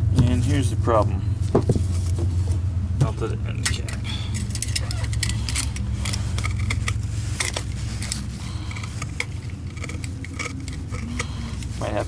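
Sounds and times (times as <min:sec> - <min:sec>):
steady low hum: 0:00.0 - 0:12.0
plastic parts clicking: 0:03.6 - 0:11.7.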